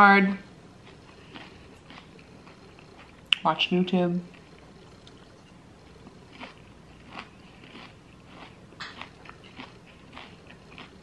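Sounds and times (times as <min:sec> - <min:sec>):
person chewing crunchy salad: 0:00.8 - 0:03.4, 0:04.3 - 0:11.0.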